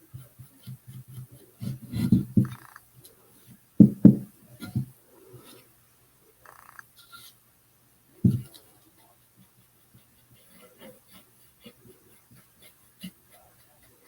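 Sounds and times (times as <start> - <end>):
soft knocks and rubbing: 0.1 - 2.8, 3.8 - 5.6, 8.2 - 8.7.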